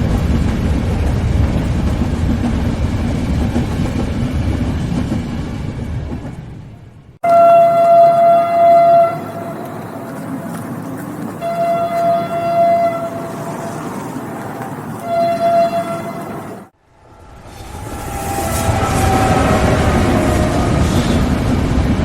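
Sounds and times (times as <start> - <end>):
train rumbling: 0.0 - 22.0
train horn blasts: 7.2 - 9.8, 11.4 - 13.4, 15.0 - 16.6, 17.6 - 21.3.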